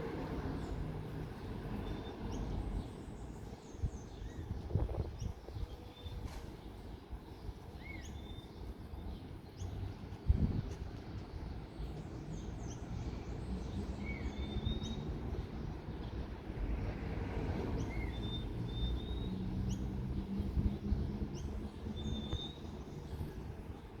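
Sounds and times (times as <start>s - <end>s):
bird chirps: 21.4s - 23.4s.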